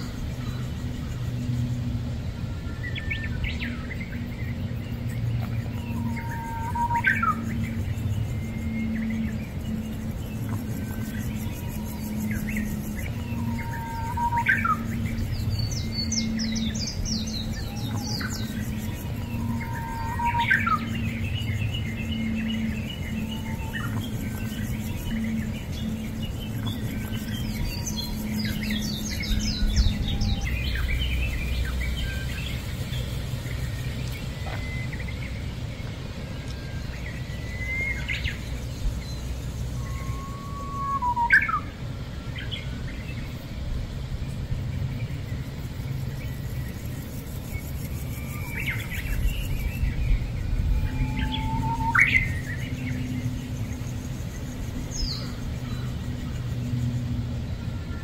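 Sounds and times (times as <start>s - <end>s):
small birds chirping: 0.0s - 57.6s
steady low rumble: 0.0s - 58.0s.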